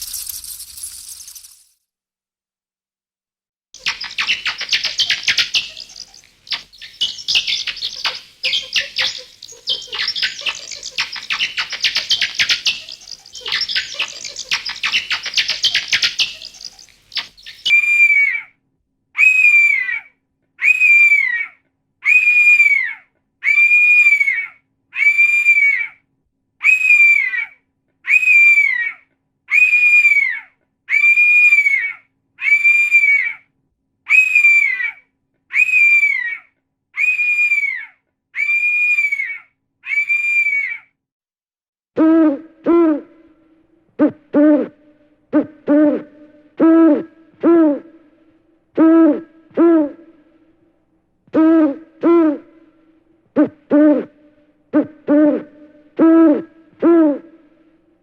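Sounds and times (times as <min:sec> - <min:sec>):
rapid high chattering clicks: 0:00.0 - 0:01.8.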